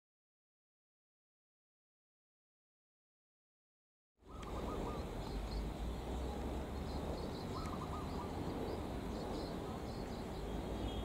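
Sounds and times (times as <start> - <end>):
small birds chirping: 4.2 - 11.0
steady low rumble: 4.3 - 11.0.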